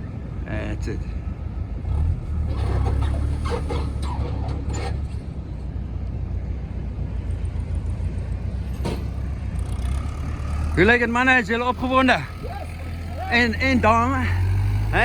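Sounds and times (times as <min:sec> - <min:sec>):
outboard motors rumbling: 0:08.6 - 0:15.0.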